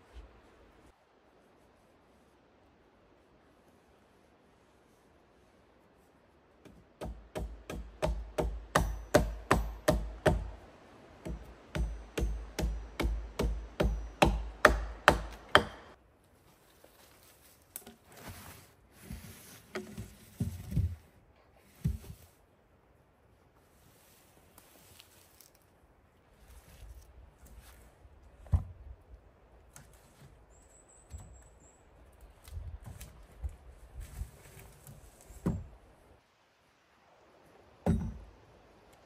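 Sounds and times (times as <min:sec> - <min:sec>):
tool striking wood: 0:06.7 - 0:10.6, 0:11.2 - 0:16.0, 0:37.8 - 0:38.2
soft scraping: 0:16.4 - 0:22.4.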